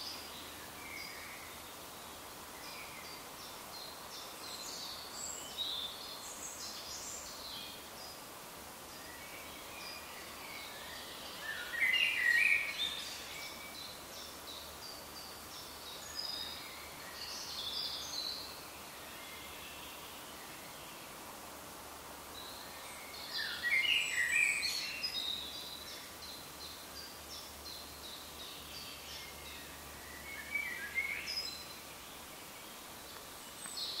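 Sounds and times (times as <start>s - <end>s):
steady background hiss: 0.0s - 34.0s
birds chirping and trilling: 22.4s - 34.0s.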